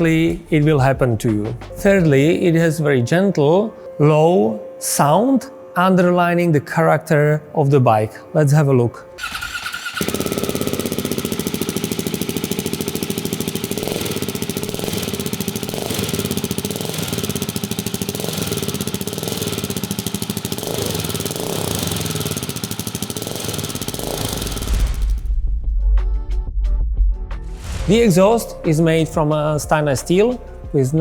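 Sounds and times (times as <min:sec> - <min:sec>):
motorcycle engine idling: 0:00.0 - 0:02.6, 0:09.2 - 0:25.2.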